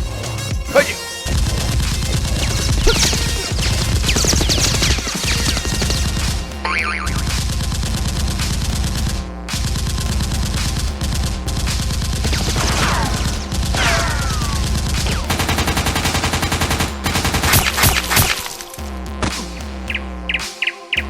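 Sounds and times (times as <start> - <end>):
automatic gunfire: 11.5 - 18.4.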